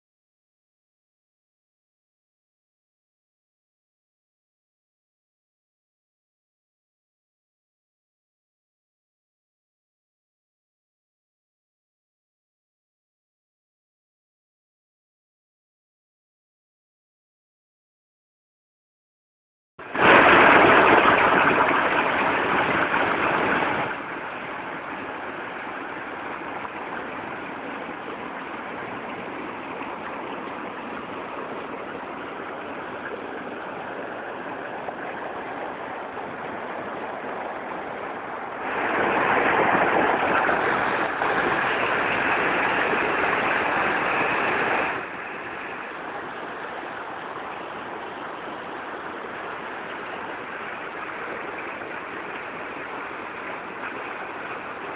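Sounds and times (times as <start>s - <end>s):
water rushing: 19.8s - 54.9s.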